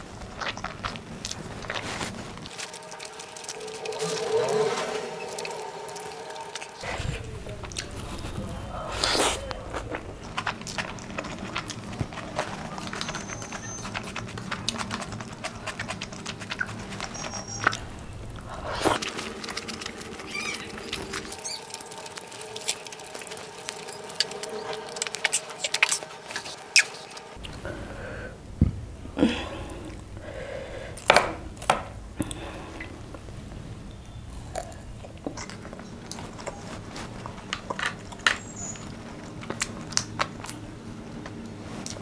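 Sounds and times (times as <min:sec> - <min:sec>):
chewing with sharp clicks: 0:09.4 - 0:18.0, 0:18.8 - 0:27.6, 0:34.4 - 0:42.0.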